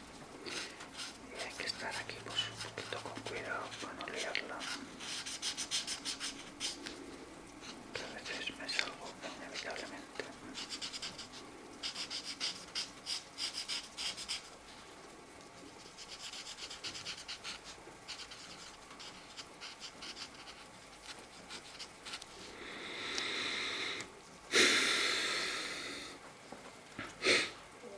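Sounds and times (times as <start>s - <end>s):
marker rubbing on paper: 0.5s - 7.0s, 7.6s - 14.5s, 15.8s - 22.4s.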